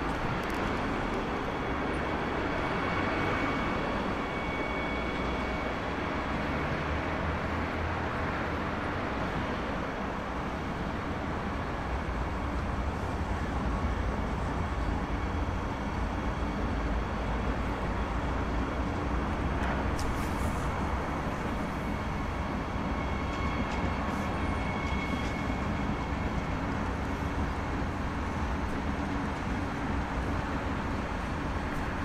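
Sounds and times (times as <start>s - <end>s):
train wheels rumbling on rails: 0.0s - 32.0s
faint high squeal: 1.4s - 6.6s, 21.5s - 27.6s.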